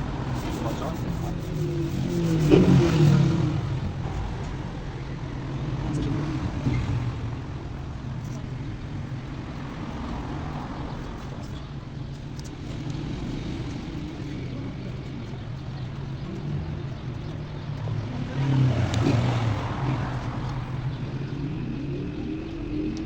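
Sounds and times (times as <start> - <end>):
low motor drone: 0.0 - 23.0
faint clicks: 11.0 - 13.0.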